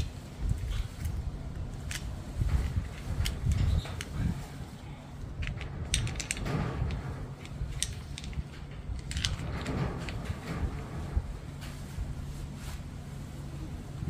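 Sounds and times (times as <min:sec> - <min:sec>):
low background hum: 0:00.0 - 0:14.0
metal parts and tools clinking: 0:05.4 - 0:11.2.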